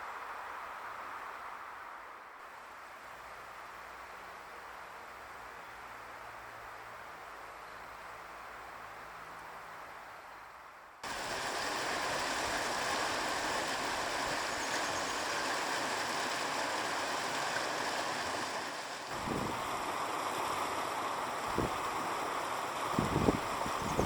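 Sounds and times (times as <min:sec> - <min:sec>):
soft hiss: 0:00.0 - 0:24.0
running water rushing: 0:11.0 - 0:24.0.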